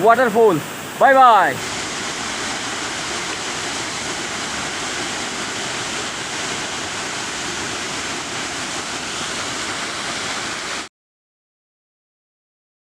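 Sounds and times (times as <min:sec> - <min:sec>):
waterfall pouring: 0:00.0 - 0:10.9.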